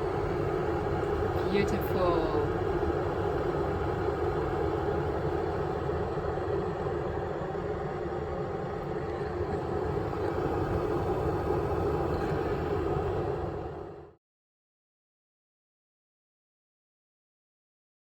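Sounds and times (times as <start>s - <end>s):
electric kettle boiling water: 0.0s - 14.2s.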